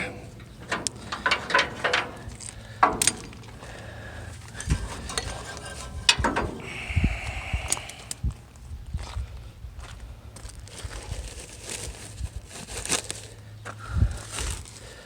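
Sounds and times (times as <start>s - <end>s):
dull thuds: 0.0s - 8.4s.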